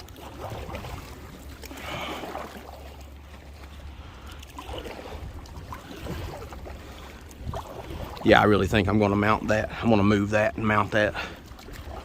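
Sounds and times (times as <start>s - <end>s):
water lapping against kayak hull: 0.0s - 12.0s
wind rumble on microphone: 4.0s - 10.0s.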